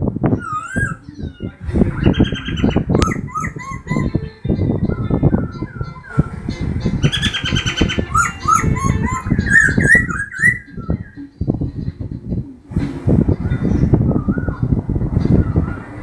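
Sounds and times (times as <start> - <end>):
young songbird chirping and singing: 0.2 - 12.2, 13.4 - 16.0.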